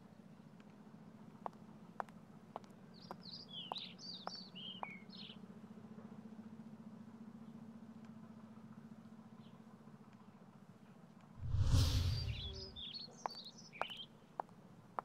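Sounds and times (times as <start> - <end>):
small birds chirping: 2.6 - 5.4, 11.8 - 14.5
steady low hum: 11.4 - 12.9.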